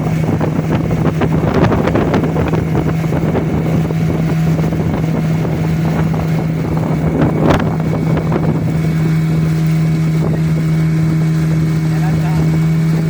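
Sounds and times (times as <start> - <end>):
motorboat engine running: 0.0 - 13.0
wind buffeting microphone: 0.0 - 13.0.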